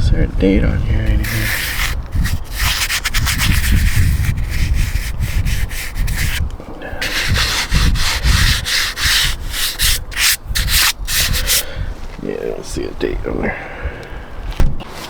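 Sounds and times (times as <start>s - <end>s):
scrubbing on battery case: 1.1s - 11.6s.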